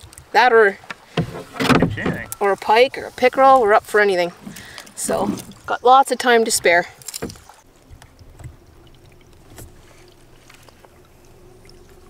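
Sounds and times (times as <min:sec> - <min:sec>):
soft paddle strokes: 0:07.4 - 0:12.0.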